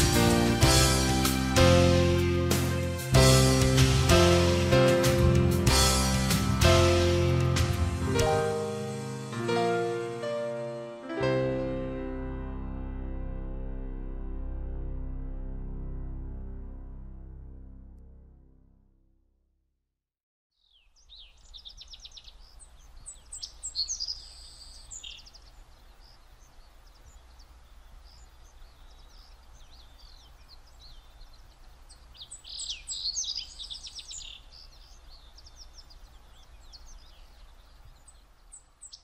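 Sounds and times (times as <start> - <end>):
songbirds singing: 20.5 - 39.0.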